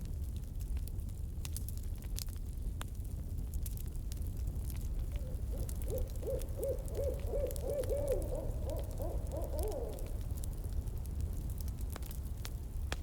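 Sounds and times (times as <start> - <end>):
campfire crackling: 0.6 - 13.0
owl hooting: 4.9 - 10.4.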